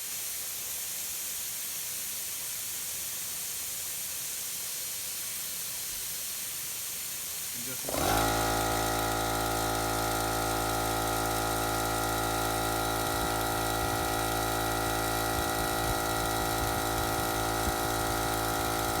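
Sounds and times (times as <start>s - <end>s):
electric air compressor running: 7.6s - 19.0s.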